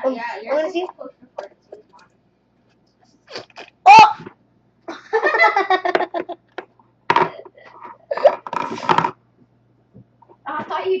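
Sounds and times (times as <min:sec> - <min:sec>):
children giggling: 0:04.9 - 0:06.5.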